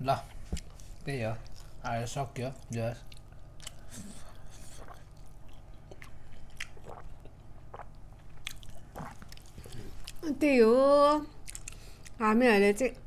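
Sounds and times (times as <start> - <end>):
faint low hum: 0.0 - 13.0
mouth chewing food: 0.6 - 10.2, 11.4 - 12.2.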